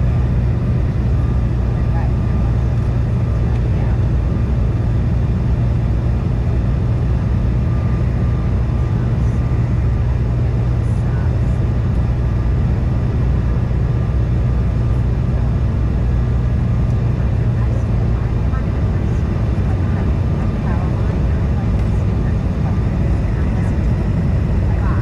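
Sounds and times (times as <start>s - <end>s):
jet engine drone: 0.0s - 25.0s.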